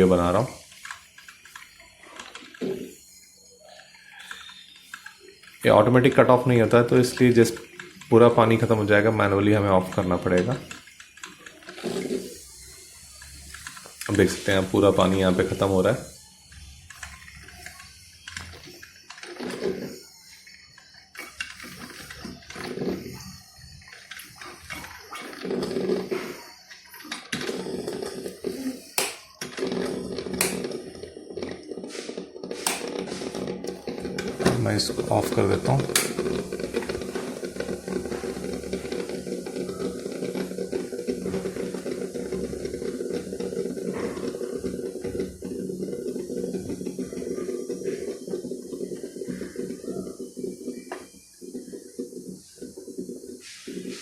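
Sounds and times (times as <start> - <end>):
coffee maker gurgling: 0.0 - 54.0
irregular crackles: 0.0 - 54.0
coffee maker clicks: 23.9 - 31.0, 32.4 - 48.1.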